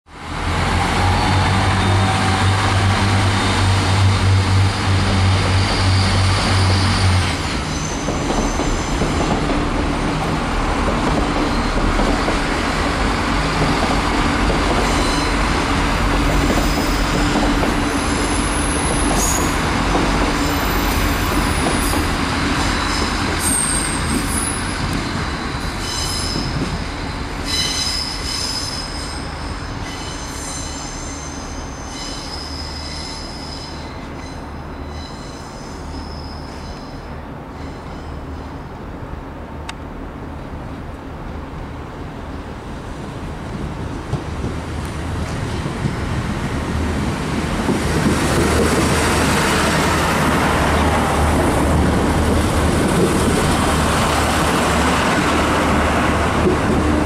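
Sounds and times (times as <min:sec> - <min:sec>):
train rumbling on track: 0:00.1 - 0:57.0
high-pitched wheel squeals: 0:05.4 - 0:09.0, 0:14.8 - 0:15.5, 0:20.5 - 0:38.5.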